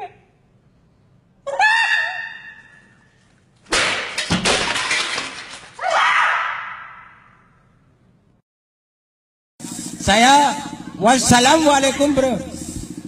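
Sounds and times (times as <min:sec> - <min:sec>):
glass shattering: 0:03.7 - 0:05.8.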